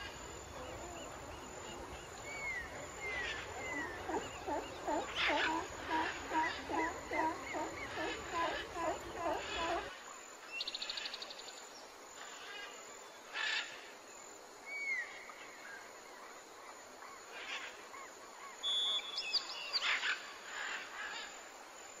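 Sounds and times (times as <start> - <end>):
birds calling: 0.0 - 9.9.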